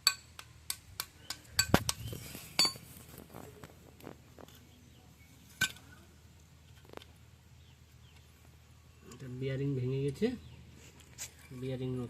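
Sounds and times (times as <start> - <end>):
metal tools clinking: 2.5 - 2.9.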